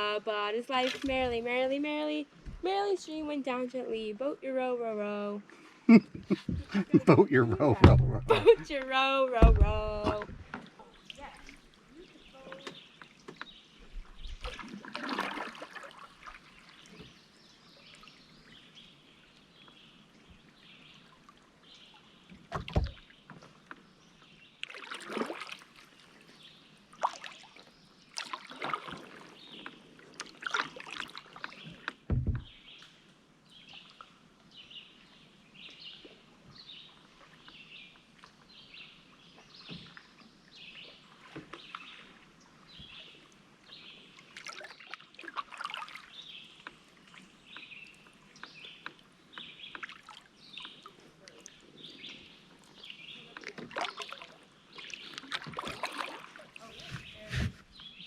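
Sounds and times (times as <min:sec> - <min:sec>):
paddle splashing and dripping: 0:00.6 - 0:01.6, 0:05.4 - 0:58.0
sharp knocks: 0:07.8 - 0:08.6, 0:09.4 - 0:10.6, 0:32.1 - 0:32.5.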